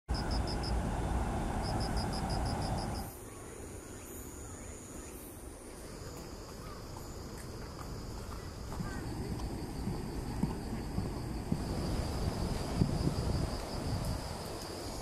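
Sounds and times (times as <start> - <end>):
insects chirping and trilling: 0.1 - 15.0.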